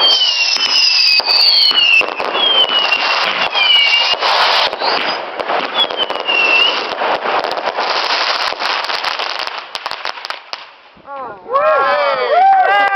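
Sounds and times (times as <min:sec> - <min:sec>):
fireworks whistles falling in pitch: 0:00.0 - 0:10.1
fireworks crackling bangs: 0:00.0 - 0:11.1.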